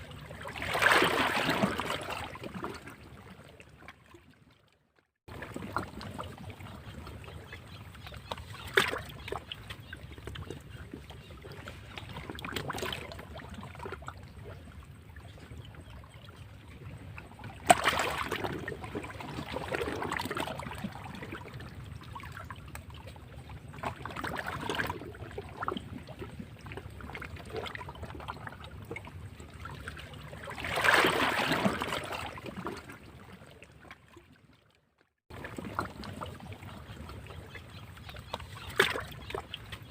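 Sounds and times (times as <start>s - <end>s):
sea waves breaking over rocks: 0.0s - 2.9s, 30.5s - 32.8s.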